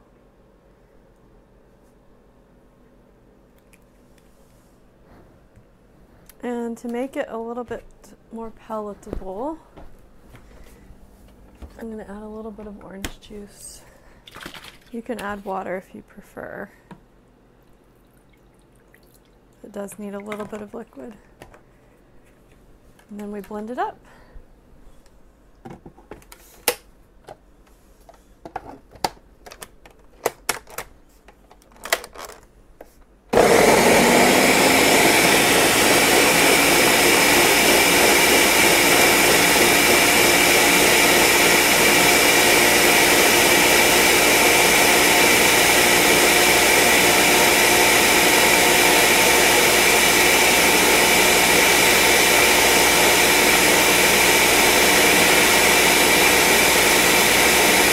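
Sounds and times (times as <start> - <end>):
blender running: 33.3 - 57.9.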